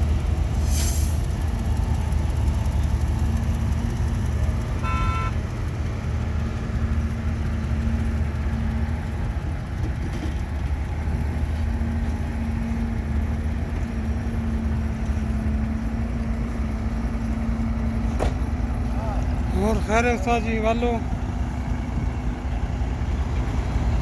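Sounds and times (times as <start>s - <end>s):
heavy diesel engine running: 0.0s - 24.0s
short horn beep: 4.8s - 5.4s.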